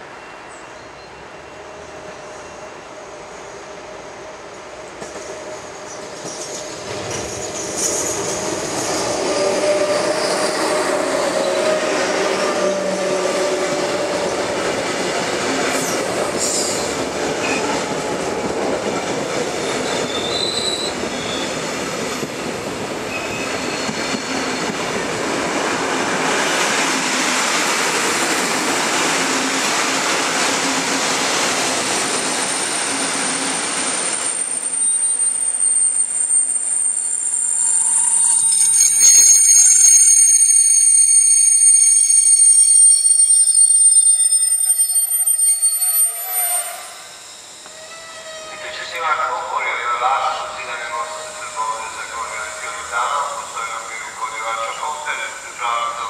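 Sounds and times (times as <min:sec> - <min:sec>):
train brakes squealing: 0:00.0 - 0:03.6, 0:05.6 - 0:14.4, 0:15.6 - 0:17.8, 0:19.6 - 0:21.7, 0:23.1 - 0:25.0, 0:32.1 - 0:55.4
electric locomotives passing: 0:00.0 - 0:56.0.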